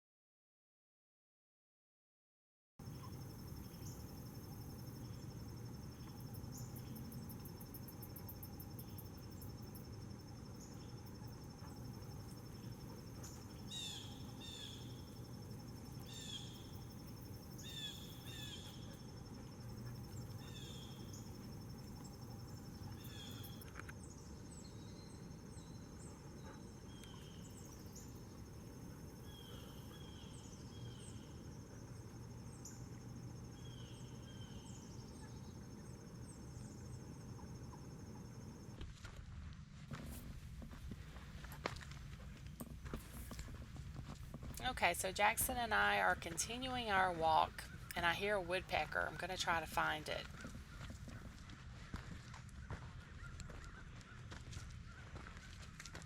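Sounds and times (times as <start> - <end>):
high-pitched insect trill: 2.8 - 26.0
birds chirping: 2.8 - 38.7, 44.6 - 56.0.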